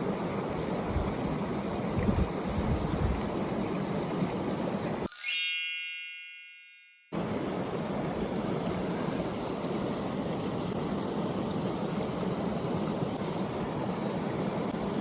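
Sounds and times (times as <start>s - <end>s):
bright chime: 5.0s - 7.2s.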